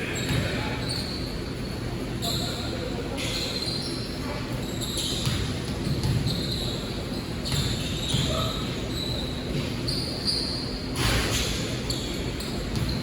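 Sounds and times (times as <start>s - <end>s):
sneakers squeaking on floor: 0.0s - 13.0s
basketball bouncing on court: 0.1s - 0.8s, 4.9s - 8.7s, 11.0s - 13.0s.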